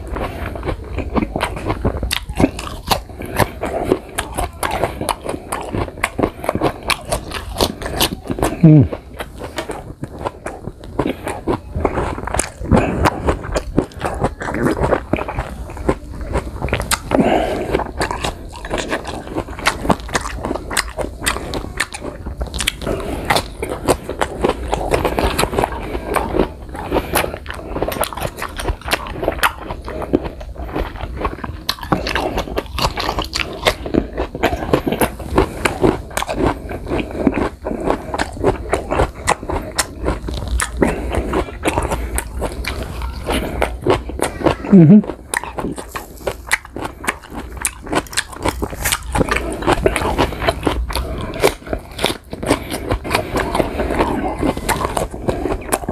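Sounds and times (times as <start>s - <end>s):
person crunching fruit: 0.0s - 55.9s.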